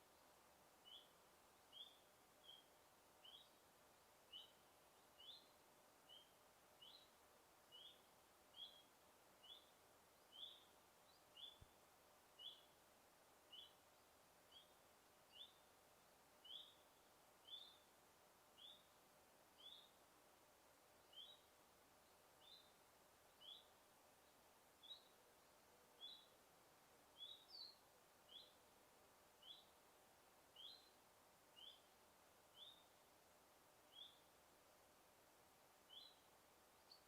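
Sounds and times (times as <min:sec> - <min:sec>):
steady background hiss: 0:00.0 - 0:37.0
bird chirping: 0:00.1 - 0:03.7, 0:04.3 - 0:11.8, 0:12.4 - 0:12.8, 0:13.5 - 0:15.7, 0:16.4 - 0:17.8, 0:18.6 - 0:19.0, 0:19.6 - 0:20.0, 0:21.0 - 0:26.4, 0:27.1 - 0:28.6, 0:29.4 - 0:29.8, 0:30.5 - 0:33.0, 0:33.9 - 0:34.3, 0:35.9 - 0:37.0.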